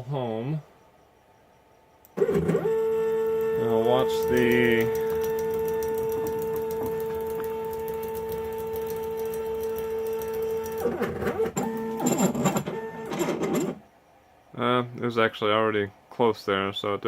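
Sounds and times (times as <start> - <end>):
stepper motors whining: 2.1 - 13.8.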